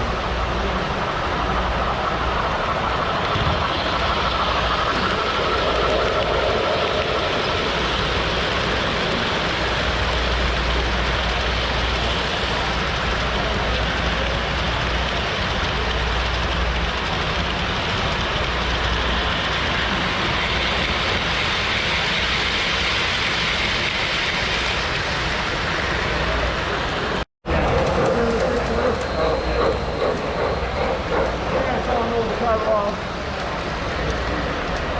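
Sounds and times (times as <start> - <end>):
busy exhibition hall ambience: 26.0 - 34.9.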